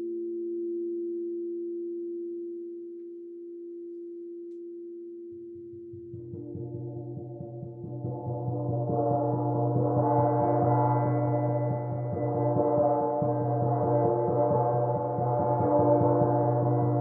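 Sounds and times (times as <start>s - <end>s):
gong ringing: 6.3s - 17.0s.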